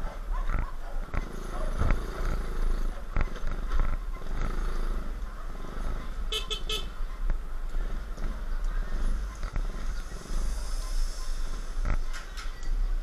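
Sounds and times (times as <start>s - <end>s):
motorcycle engine: 0.0s - 13.0s
horn tooting: 6.3s - 7.0s.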